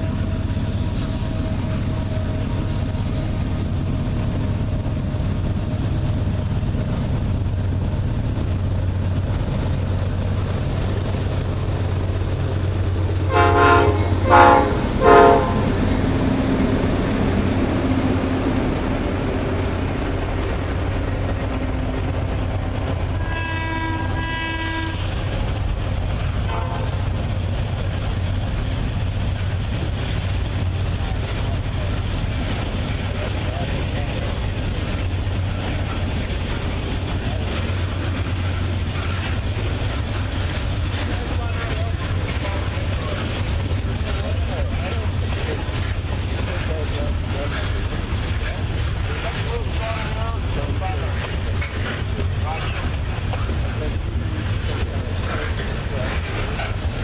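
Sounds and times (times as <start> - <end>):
diesel locomotives rumbling: 0.0 - 57.0
locomotive horn blasts: 13.3 - 15.8, 23.2 - 25.0, 26.5 - 27.0.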